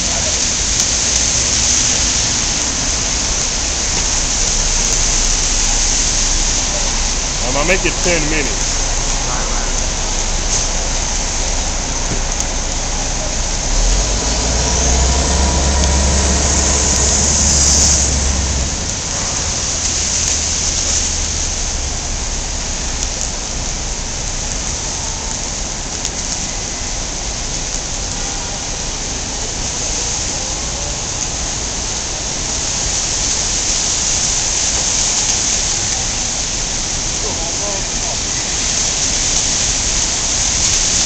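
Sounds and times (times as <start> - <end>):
rain hiss on street: 0.0 - 41.0
low rumble: 2.5 - 24.8.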